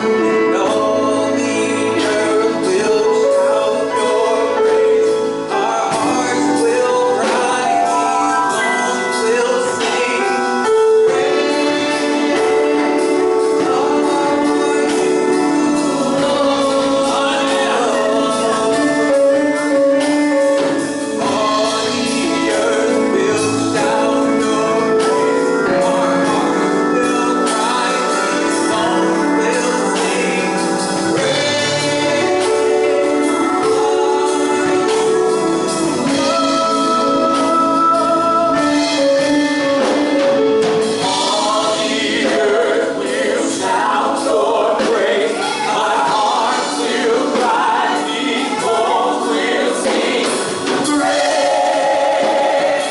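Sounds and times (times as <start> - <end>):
gospel choir singing: 0.0 - 52.9.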